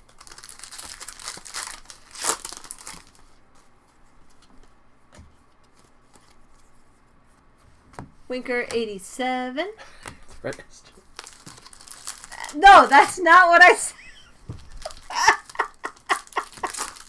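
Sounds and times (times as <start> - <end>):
wrapper crinkling and tearing: 0.0 - 3.4, 11.0 - 13.4, 14.7 - 17.0
card handling: 14.6 - 17.0.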